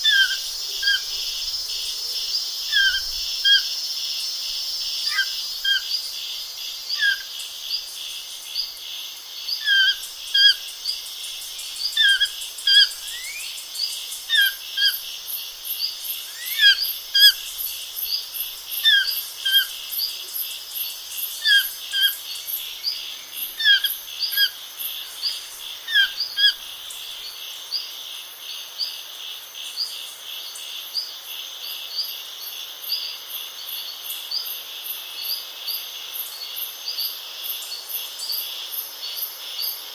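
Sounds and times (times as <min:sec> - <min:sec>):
insects trilling: 0:00.0 - 0:39.9
small birds chirping: 0:09.4 - 0:27.9.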